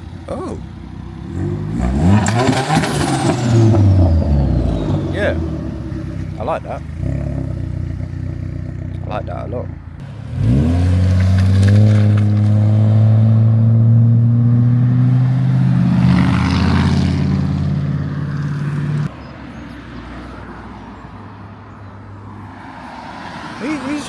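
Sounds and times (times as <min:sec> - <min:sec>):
car engine revving: 0:00.0 - 0:19.1
car driving by: 0:00.0 - 0:24.0.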